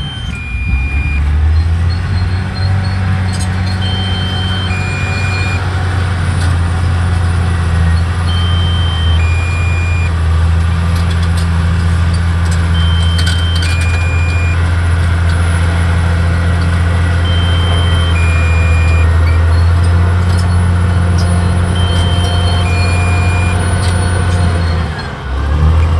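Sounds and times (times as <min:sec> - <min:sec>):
two-note electronic beep: 0:00.0 - 0:01.7, 0:03.7 - 0:05.6, 0:08.3 - 0:10.1, 0:12.8 - 0:14.6, 0:17.3 - 0:19.4
bulldozer diesel engine droning: 0:00.0 - 0:25.9.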